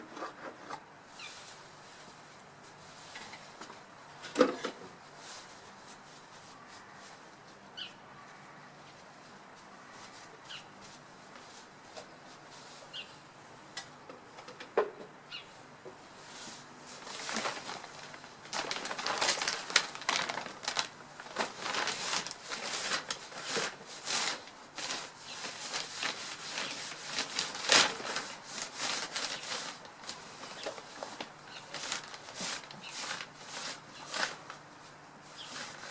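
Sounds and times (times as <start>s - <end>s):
birds flapping in branches: 17.0s - 34.6s.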